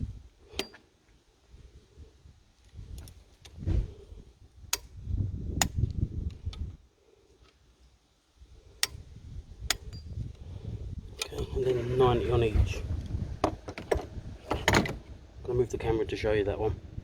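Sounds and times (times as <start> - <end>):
tool handling knocks and rustle: 13.4 - 15.2.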